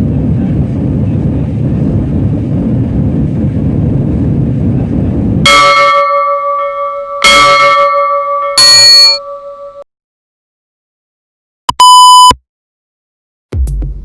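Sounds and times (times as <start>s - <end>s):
jet engine rumble: 0.0s - 5.5s
struck bell-like chimes: 5.5s - 9.8s.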